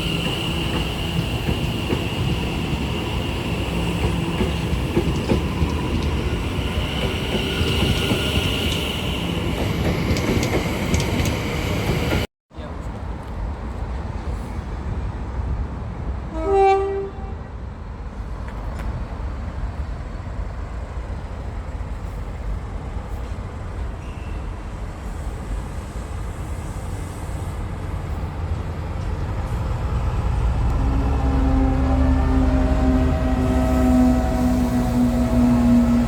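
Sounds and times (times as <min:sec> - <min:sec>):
train rumbling: 0:00.0 - 0:36.0
train horn toot: 0:16.3 - 0:17.5, 0:30.6 - 0:36.0.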